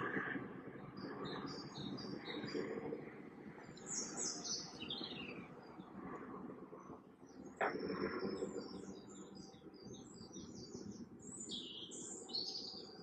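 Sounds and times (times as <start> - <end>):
small birds chirping: 0.9 - 6.2, 6.8 - 13.0.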